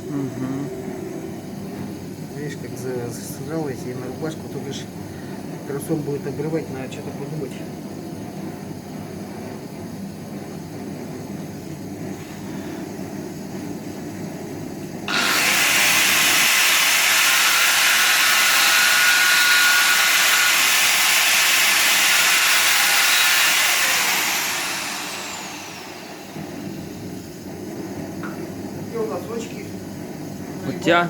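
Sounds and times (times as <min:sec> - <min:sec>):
power tool winding down whine: 0:15.1 - 0:27.0
power tool running with hiss: 0:15.1 - 0:28.4.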